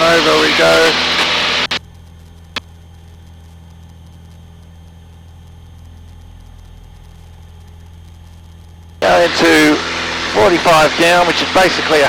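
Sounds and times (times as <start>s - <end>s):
open microphone rush: 0.0s - 2.6s, 8.0s - 12.0s
aircraft engine drone: 0.0s - 12.0s.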